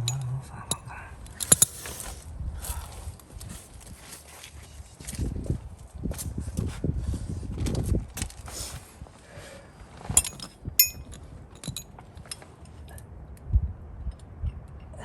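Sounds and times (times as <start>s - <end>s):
metal tools clinking: 0.0s - 2.1s, 10.1s - 12.8s.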